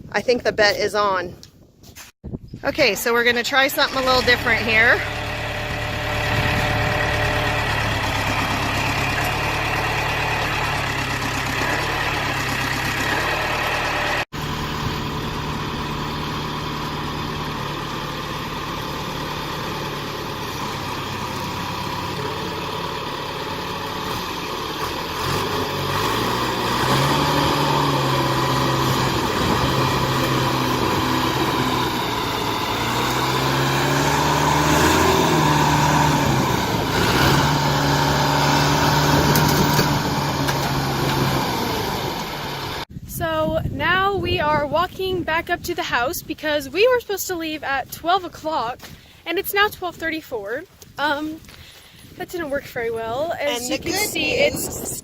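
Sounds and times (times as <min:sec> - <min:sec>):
vehicle engine revving under load: 0:03.8 - 0:42.9.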